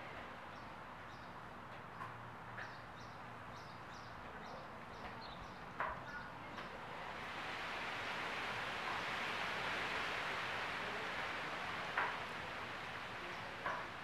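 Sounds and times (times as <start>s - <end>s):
steady low hiss: 6.4s - 14.0s.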